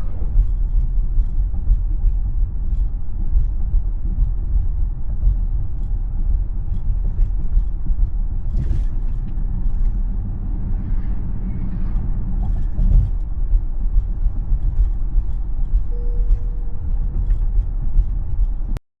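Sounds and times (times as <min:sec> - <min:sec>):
road and tyre rumble: 0:00.0 - 0:18.8
faint steady tone: 0:15.7 - 0:17.4.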